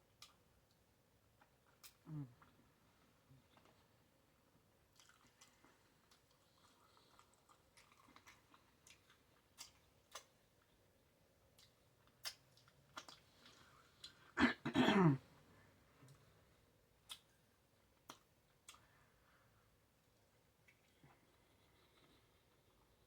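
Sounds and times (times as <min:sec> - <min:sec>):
faint chewing: 0:00.1 - 0:04.0, 0:04.8 - 0:14.4, 0:17.0 - 0:23.0
wet mouth clicks and smacks: 0:09.6 - 0:10.3, 0:11.6 - 0:13.2, 0:17.0 - 0:17.4.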